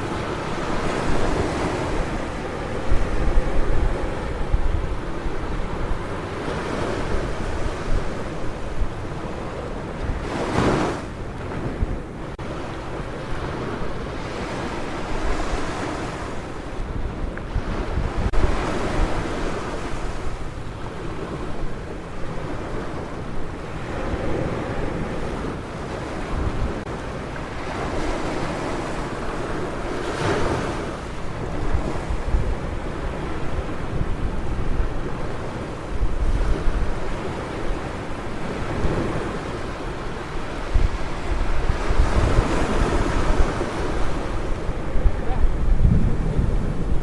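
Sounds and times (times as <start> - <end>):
ocean waves breaking: 0.0 - 47.0
wind rumble on microphone: 0.0 - 47.0.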